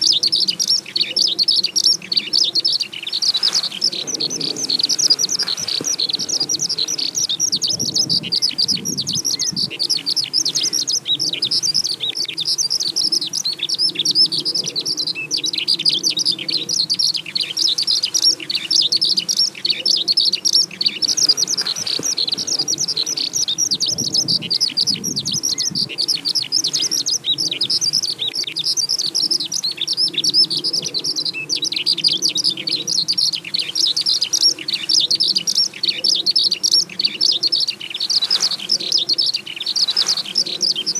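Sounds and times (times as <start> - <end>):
skylark singing: 0.0 - 40.9.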